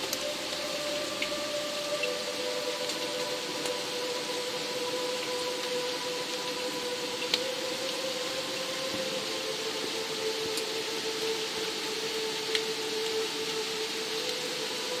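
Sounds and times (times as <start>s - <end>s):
raindrop click: 0.0s - 0.3s, 2.8s - 3.8s, 7.2s - 7.5s, 12.4s - 13.2s
soft ambient music drone: 0.0s - 15.0s
steady rain hiss: 0.0s - 15.0s.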